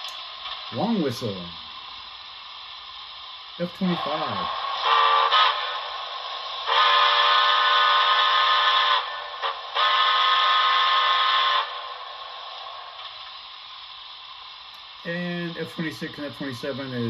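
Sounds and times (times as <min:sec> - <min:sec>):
steam hiss: 0:00.0 - 0:17.0
chime steam whistle: 0:04.8 - 0:05.9, 0:06.6 - 0:12.0.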